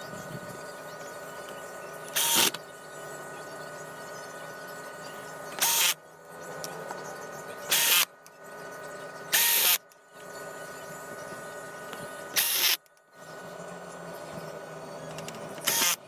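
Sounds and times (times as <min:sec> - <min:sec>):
electric screwdriver driving screws: 0:02.2 - 0:02.6, 0:05.6 - 0:06.0, 0:07.7 - 0:08.1, 0:09.4 - 0:09.8, 0:12.4 - 0:12.8, 0:15.6 - 0:16.0.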